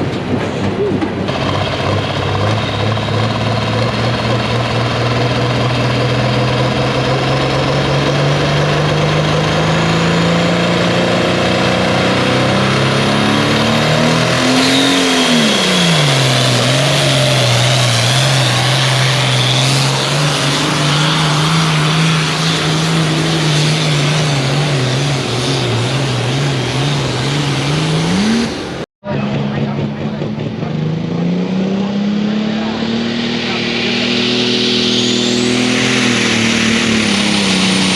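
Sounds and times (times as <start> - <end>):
tractor engine running under load: 0.0 - 27.2
high whine: 0.0 - 37.9.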